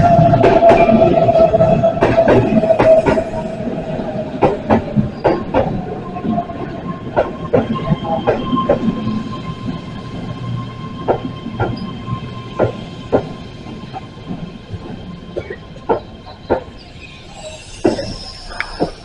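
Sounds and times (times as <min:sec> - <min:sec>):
train wheels clacking over rail joints: 0:00.2 - 0:03.4, 0:12.6 - 0:19.0
train motor whine: 0:07.9 - 0:19.0.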